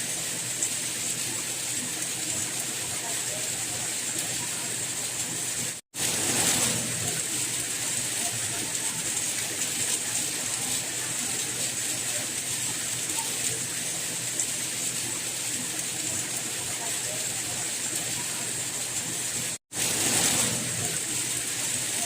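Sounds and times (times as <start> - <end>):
steady rain hiss: 0.0 - 22.0.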